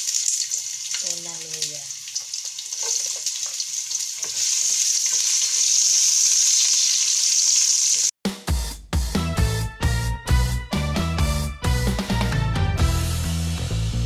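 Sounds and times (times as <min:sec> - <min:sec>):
ginger sizzling in hot oil: 0:00.0 - 0:08.1
music: 0:08.2 - 0:14.0.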